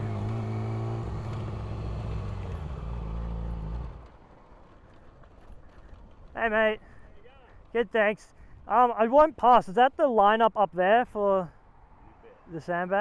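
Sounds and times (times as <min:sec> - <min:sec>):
motorcycle engine running: 0:00.0 - 0:04.2.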